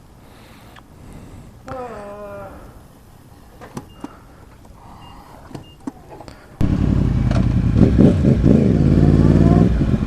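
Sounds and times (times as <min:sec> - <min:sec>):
motorcycle engine running: 0:06.6 - 0:10.0.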